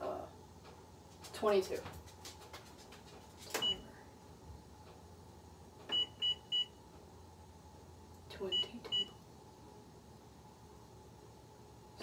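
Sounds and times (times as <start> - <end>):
oven keypad beeps: 3.6 - 3.9, 5.9 - 6.8, 8.5 - 9.2.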